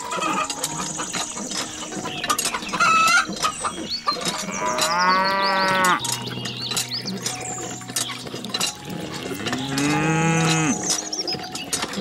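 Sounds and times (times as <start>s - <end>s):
cow mooing: 4.3s - 6.1s, 9.1s - 10.9s.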